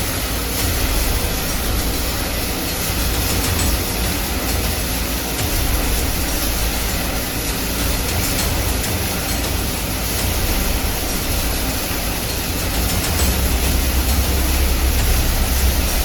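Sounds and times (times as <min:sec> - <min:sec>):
dense mechanical noise: 0:00.0 - 0:16.0
low rumble: 0:10.4 - 0:16.0.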